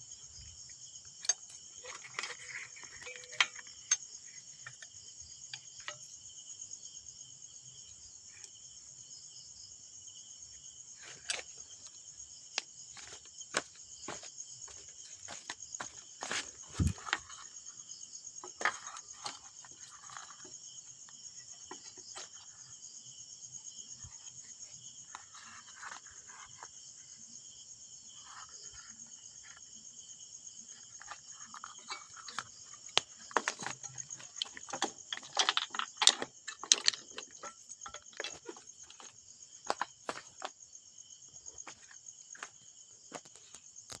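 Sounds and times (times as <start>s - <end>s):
crickets chirping: 0.0s - 44.0s
small parts clicking and clinking: 1.2s - 4.9s, 31.0s - 39.1s.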